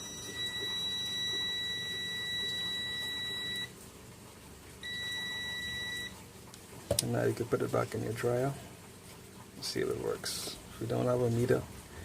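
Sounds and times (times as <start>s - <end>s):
multimeter continuity beep: 0.0s - 3.7s, 4.8s - 6.2s.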